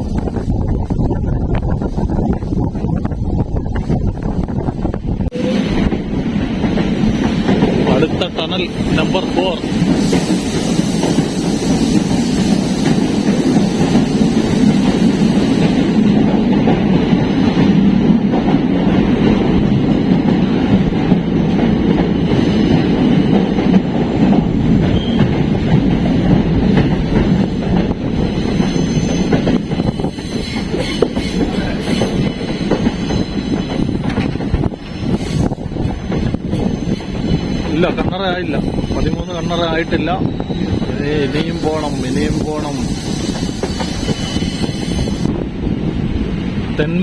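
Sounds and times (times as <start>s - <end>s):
train rumbling on board: 0.0s - 47.0s
faint high wheel squeal: 28.3s - 34.0s, 35.0s - 45.3s.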